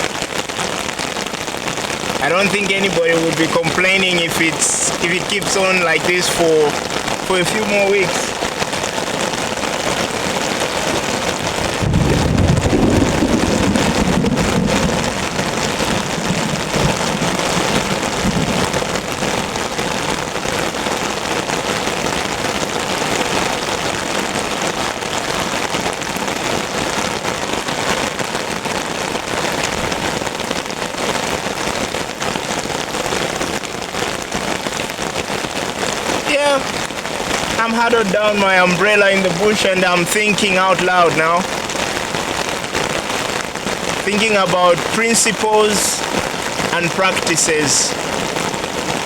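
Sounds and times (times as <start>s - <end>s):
heavy rain on an umbrella: 0.0s - 49.0s
low rumble of thunder: 11.5s - 20.0s.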